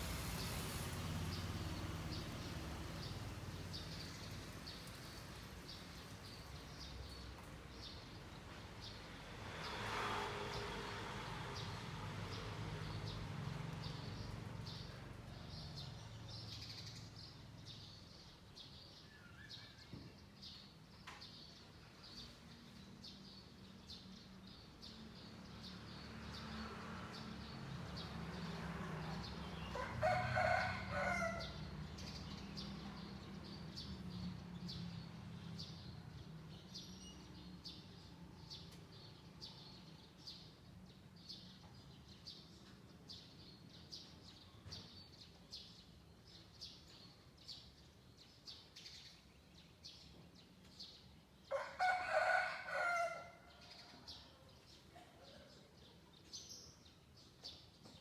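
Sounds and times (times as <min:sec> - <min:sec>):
small birds chirping: 0:00.0 - 0:09.1
rooster crowing: 0:29.7 - 0:31.6, 0:51.5 - 0:53.5.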